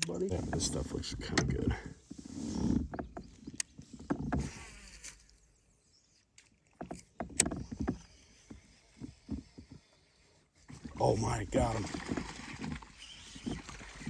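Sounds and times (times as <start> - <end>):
knocks and clicks on kayak: 0.0 - 4.7, 6.7 - 9.9
light water noise: 0.0 - 14.0.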